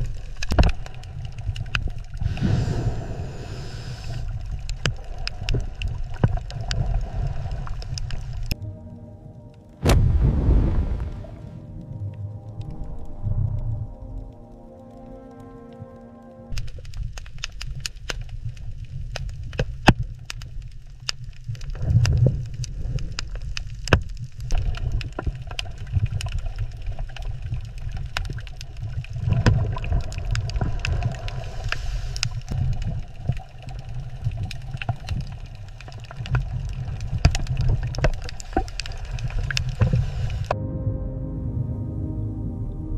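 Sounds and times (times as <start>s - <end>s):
sharp clicks and crackles: 0.0s - 2.4s, 4.1s - 8.6s, 16.5s - 40.6s
underwater water rumble: 0.0s - 42.9s.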